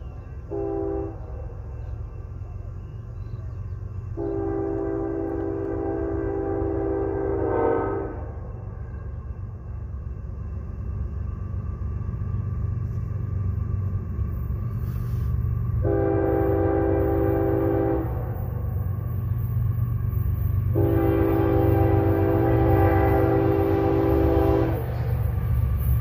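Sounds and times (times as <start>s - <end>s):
diesel locomotives rumbling: 0.0s - 26.0s
locomotive air horn blasts: 0.5s - 1.3s, 4.2s - 8.5s, 15.0s - 18.5s, 20.6s - 25.2s.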